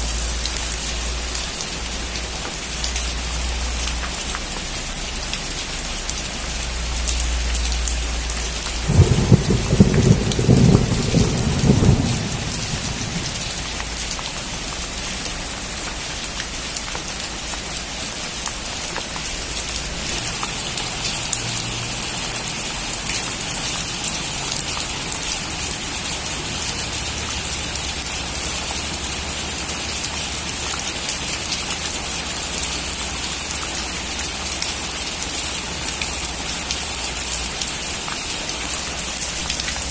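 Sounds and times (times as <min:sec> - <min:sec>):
heavy rain on a metal roof: 0:00.0 - 0:39.9
thunder crack and rumble: 0:08.8 - 0:14.2.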